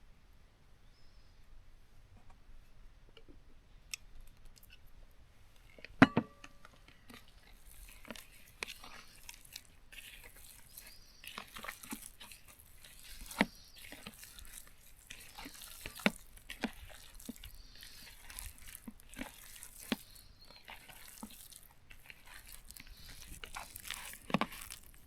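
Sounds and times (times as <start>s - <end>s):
crackling and crinkling: 3.9s - 25.0s.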